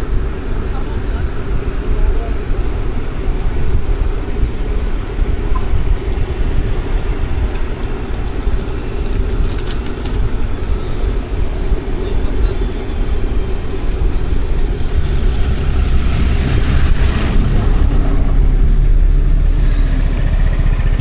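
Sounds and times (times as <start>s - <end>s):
city traffic rumble: 0.0s - 21.0s
high-pitched electronic beeps: 5.6s - 10.1s.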